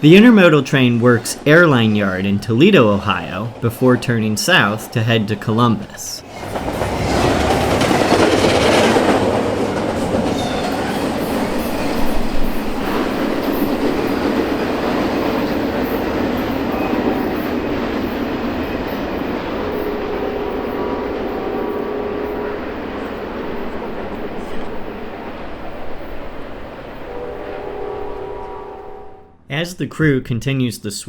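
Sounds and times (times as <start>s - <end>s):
freight train wheels on rail: 0.0s - 29.3s.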